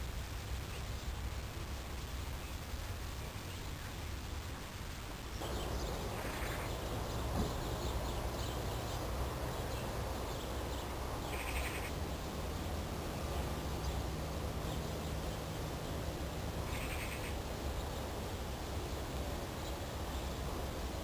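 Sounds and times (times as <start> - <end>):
low rumble and hiss: 0.0 - 21.0
harsh bird calls: 5.3 - 18.2.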